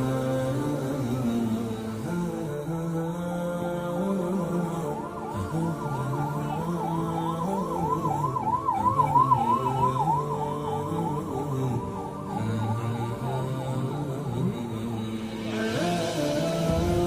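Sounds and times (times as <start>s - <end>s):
siren on fast warble: 4.2s - 14.2s.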